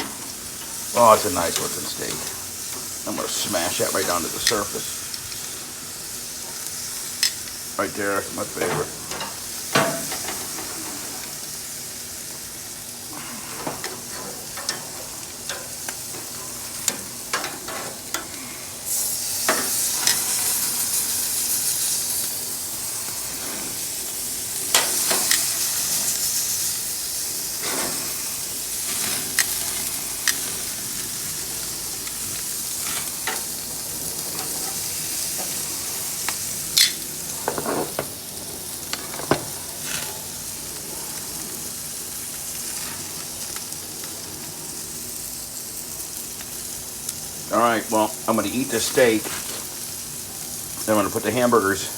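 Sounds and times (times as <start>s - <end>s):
steak sizzling on a grill: 0.0s - 51.9s.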